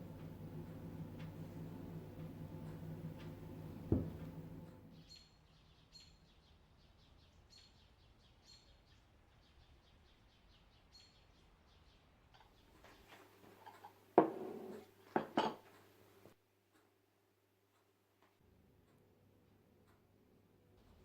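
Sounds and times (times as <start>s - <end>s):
low hum: 0.0s - 5.0s
knock: 3.8s - 4.5s, 14.2s - 15.4s.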